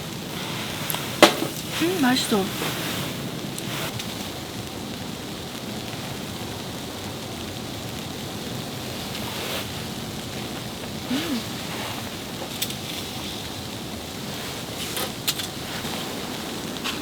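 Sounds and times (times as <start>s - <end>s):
snowstorm hiss: 0.0s - 17.0s
wind: 0.0s - 17.0s
person humming: 11.1s - 11.6s.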